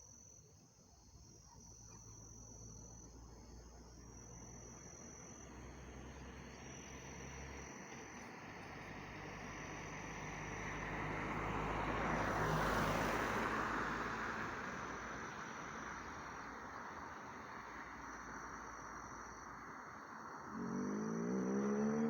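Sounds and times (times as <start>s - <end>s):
crickets chirping: 0.0s - 22.0s
vehicle passing by: 5.6s - 16.4s, 20.4s - 22.0s.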